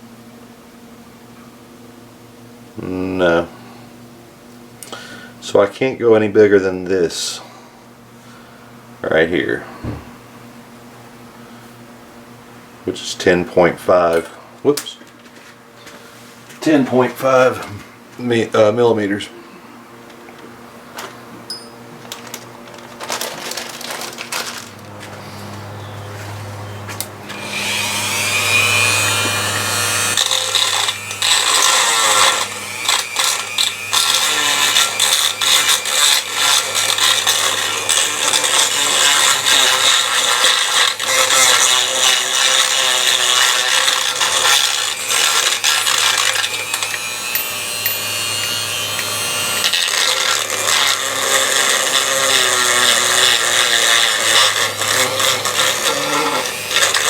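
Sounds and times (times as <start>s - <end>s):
electric drill grinding metal: 27.2s - 57.0s.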